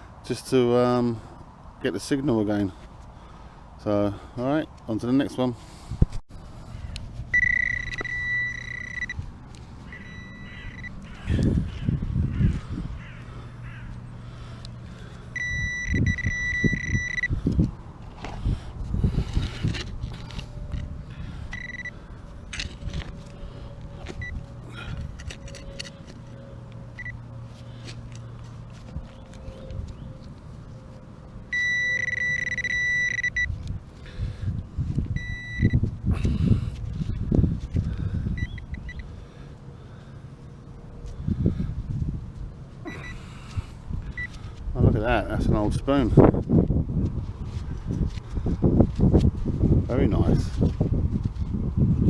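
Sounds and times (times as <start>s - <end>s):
metal detector high-pitched tone: 7.3s - 9.2s, 9.9s - 11.0s, 15.4s - 17.3s, 21.5s - 21.9s, 31.5s - 33.5s, 35.2s - 35.8s.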